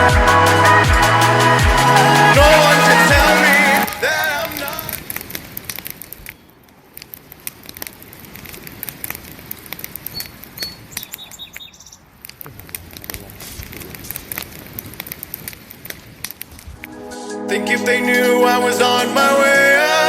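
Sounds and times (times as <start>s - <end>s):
campfire crackling and popping: 4.4s - 11.2s, 12.1s - 16.6s.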